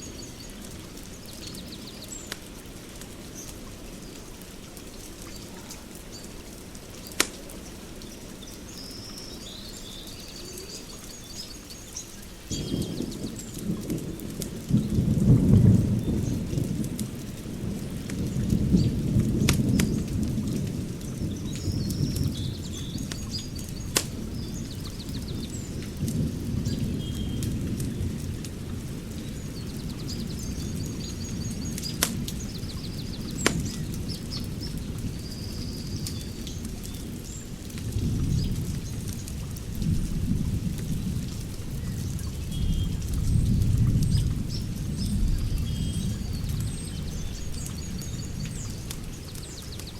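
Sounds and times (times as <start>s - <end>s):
fire crackling pops: 0.0s - 8.8s, 11.3s - 49.9s
wood fire burning: 0.0s - 8.8s, 11.9s - 49.9s
birds chirping: 6.9s - 13.6s, 21.1s - 28.2s, 29.2s - 37.5s, 41.8s - 49.9s.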